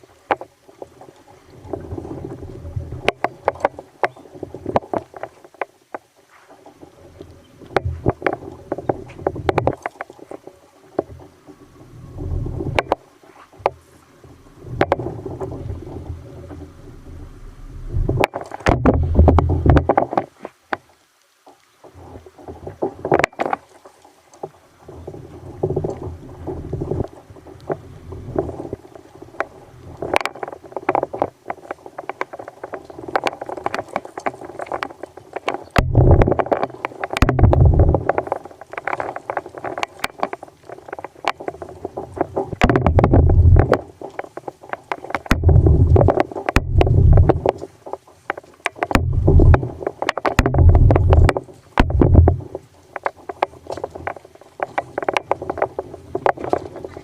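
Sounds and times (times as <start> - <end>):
water sloshing: 0.0 - 20.9, 21.8 - 57.0
wind rumble on microphone: 11.0 - 13.0, 13.6 - 20.3, 24.8 - 47.9, 48.8 - 57.0
knocks against kayak hull: 17.9 - 20.3, 35.5 - 36.6, 37.2 - 38.2, 42.5 - 43.8, 44.9 - 47.6, 48.7 - 53.1.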